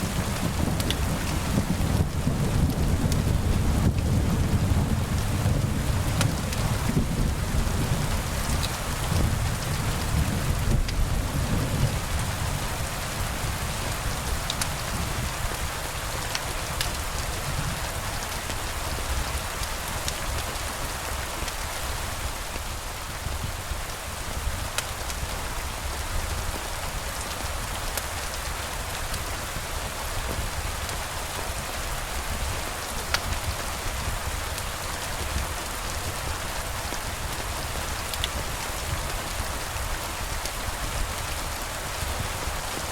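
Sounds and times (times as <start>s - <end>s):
low rumble of thunder: 0.0s - 15.8s
steady rain falling: 0.0s - 42.9s.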